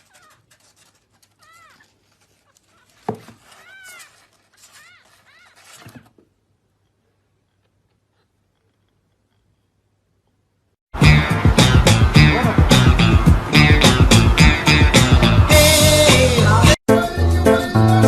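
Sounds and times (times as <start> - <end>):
cat meowing: 1.4 - 5.9.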